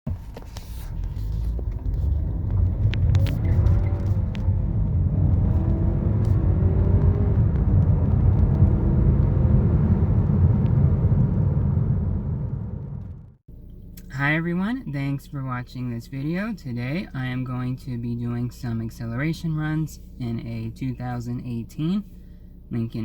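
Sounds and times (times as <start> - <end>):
low road rumble: 0.1 - 14.7
car engine accelerating hard: 0.5 - 13.4.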